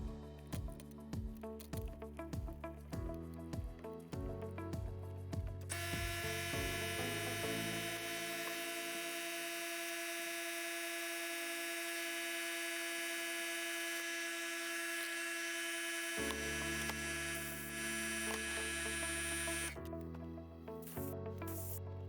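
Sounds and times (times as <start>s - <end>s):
steady electric buzz: 5.7s - 19.8s, 20.8s - 21.8s.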